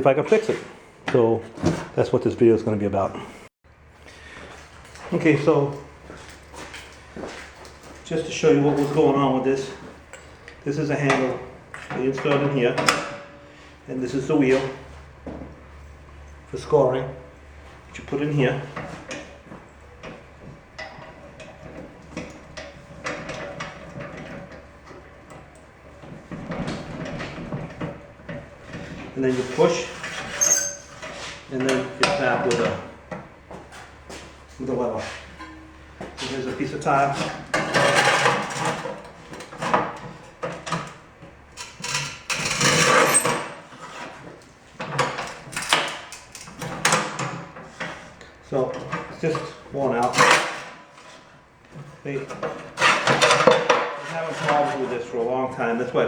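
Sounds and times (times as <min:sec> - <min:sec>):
metal clicks and knocks: 0:35.4 - 0:36.3.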